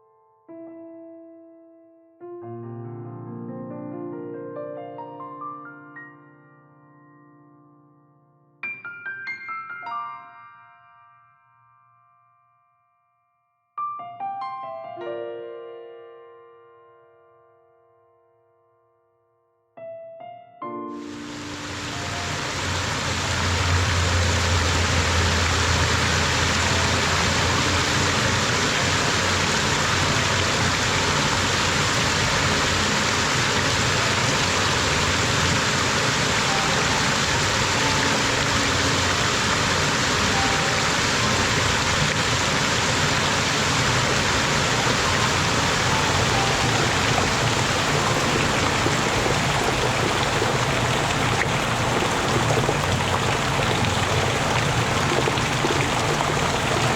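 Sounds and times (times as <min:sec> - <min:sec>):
water falling and splashing: 0:21.1 - 0:56.9.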